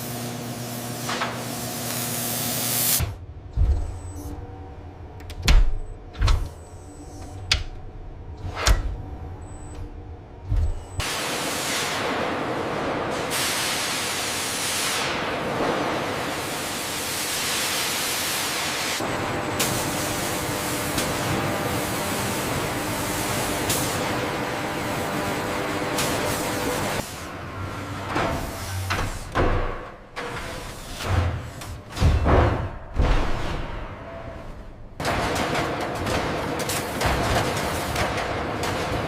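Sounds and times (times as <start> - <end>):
heavy machinery thumps: 31.1 - 34.1.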